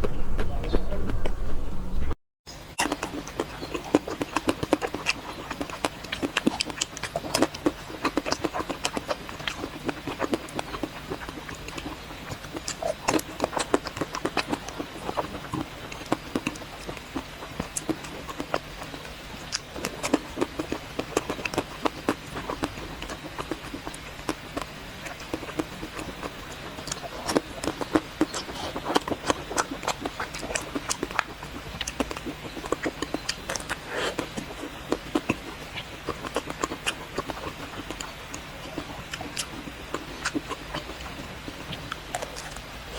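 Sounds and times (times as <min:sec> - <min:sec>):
crisp eating crackles: 0:02.7 - 0:42.9
wet mouth smacks: 0:17.6 - 0:42.7.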